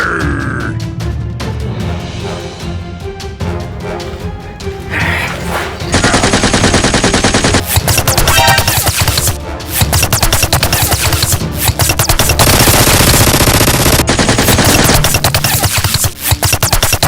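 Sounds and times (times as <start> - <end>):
rapid automatic gunfire: 5.9 - 17.0.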